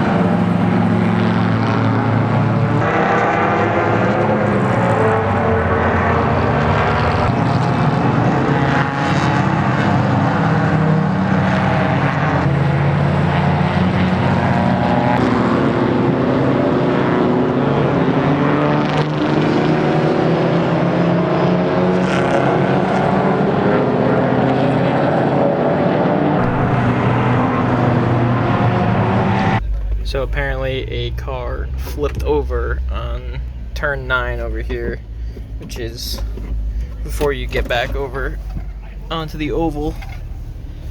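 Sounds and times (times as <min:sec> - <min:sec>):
race car engines running hard: 0:00.0 - 0:40.9.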